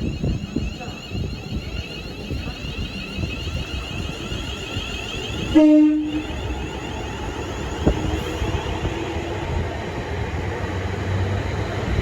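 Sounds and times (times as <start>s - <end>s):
train rumbling and hissing: 0.0s - 12.0s
train horn blast: 5.5s - 6.3s.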